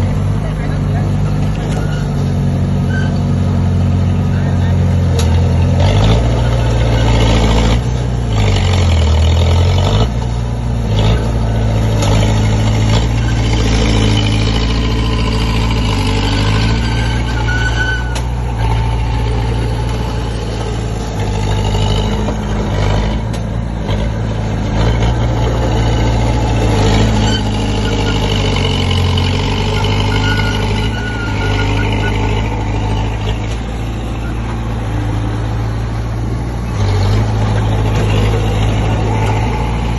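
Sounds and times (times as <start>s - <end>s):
bulldozer diesel engine under load: 0.0s - 39.9s
brief squeals: 1.7s - 2.2s, 2.9s - 3.2s, 16.4s - 18.3s, 29.7s - 32.4s.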